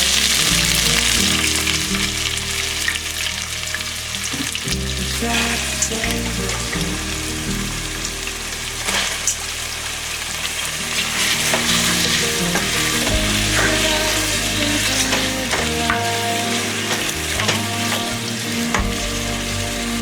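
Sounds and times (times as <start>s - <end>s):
food sizzling in a pan: 0.0s - 20.0s
soft background music: 0.0s - 20.0s
stirring clicks: 8.8s - 20.0s.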